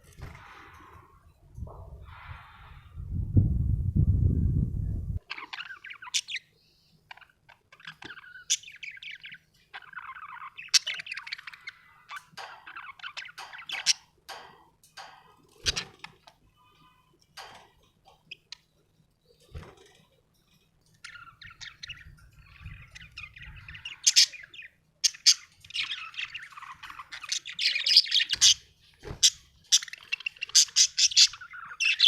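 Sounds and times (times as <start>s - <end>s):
budgerigar chirping and warbling: 5.2s - 6.5s, 29.2s - 32.0s.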